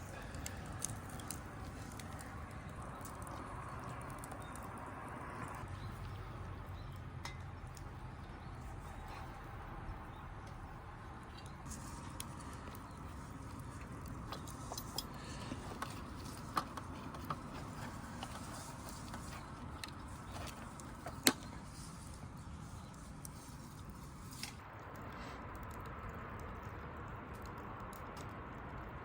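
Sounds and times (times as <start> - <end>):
low outdoor rumble: 0.0 - 29.0
small clicks and light knocks: 11.2 - 29.0.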